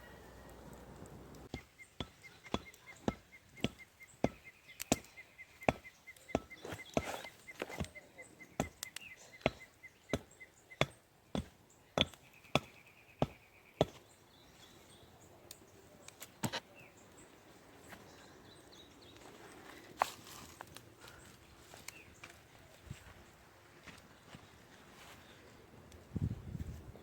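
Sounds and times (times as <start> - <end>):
bird chirping: 0.0 - 19.7
chopping on wood: 1.5 - 8.0, 8.6 - 14.0.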